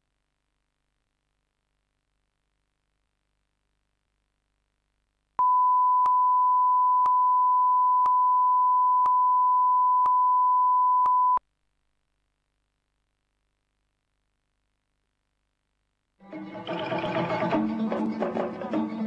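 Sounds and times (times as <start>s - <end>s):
electronic test tone: 5.4s - 11.4s.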